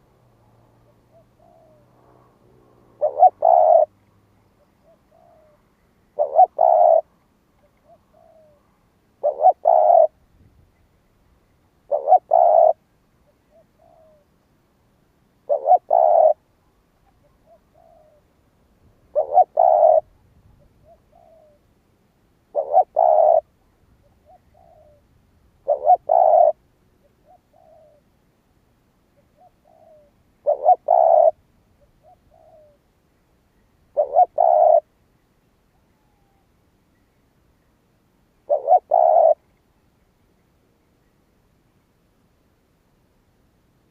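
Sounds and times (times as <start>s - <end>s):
dove cooing: 0.7s - 4.0s, 4.6s - 10.2s, 11.8s - 14.3s, 15.4s - 18.4s, 19.0s - 21.7s, 22.5s - 28.1s, 29.2s - 32.9s, 33.9s - 34.9s, 35.7s - 36.5s, 38.4s - 39.5s.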